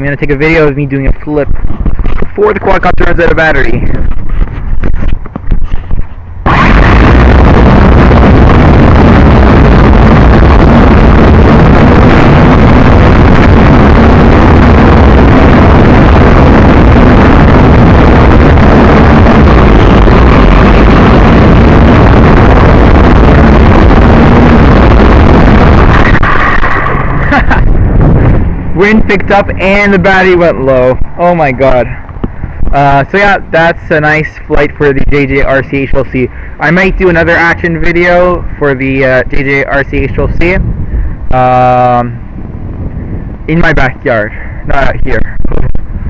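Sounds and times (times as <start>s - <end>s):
wind buffeting microphone: 0.0s - 46.0s
drone propellers spinning: 3.8s - 33.2s.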